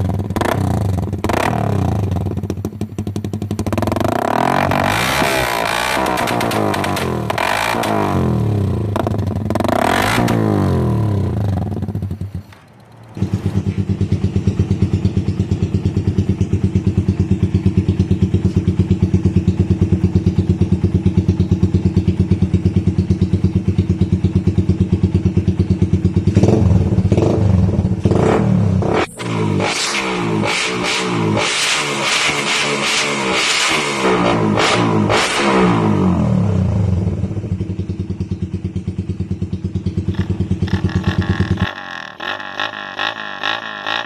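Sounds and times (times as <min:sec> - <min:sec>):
motorcycle idling: 0:00.0 - 0:04.8, 0:10.4 - 0:29.6, 0:36.1 - 0:44.0
motorcycle revving: 0:00.0 - 0:44.0.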